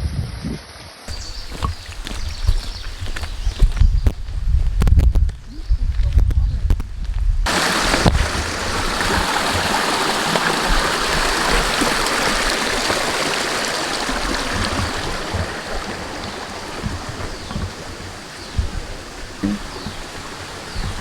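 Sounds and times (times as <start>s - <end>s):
creek water flowing: 1.1s - 4.4s, 7.5s - 21.0s.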